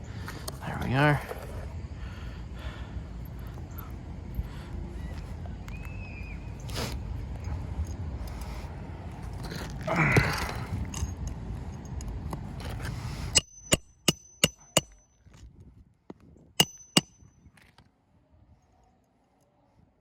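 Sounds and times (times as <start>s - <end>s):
hammer striking roofing nails: 13.4s - 15.0s, 16.6s - 17.2s.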